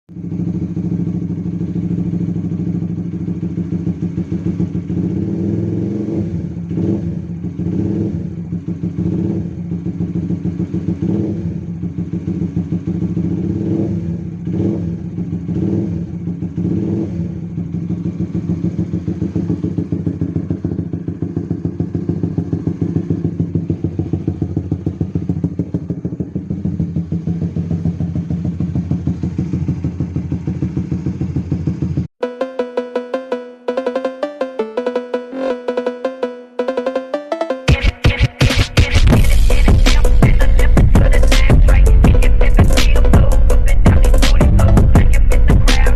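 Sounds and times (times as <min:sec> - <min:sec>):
motorcycle engine idling: 0:00.1 - 0:32.1, 0:38.8 - 0:45.9
motorcycle throttle blips: 0:00.2 - 0:32.1.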